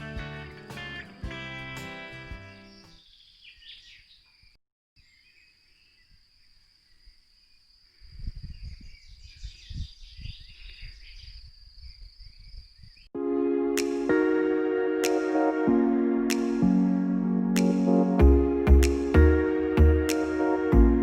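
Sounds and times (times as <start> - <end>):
small birds chirping: 0.0 - 13.1.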